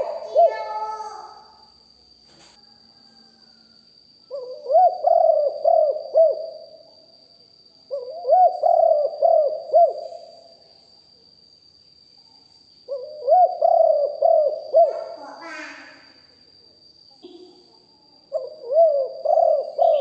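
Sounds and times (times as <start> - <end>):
dove cooing: 0.0 - 1.0, 4.3 - 6.8, 7.9 - 10.3, 12.9 - 15.6, 18.3 - 20.0.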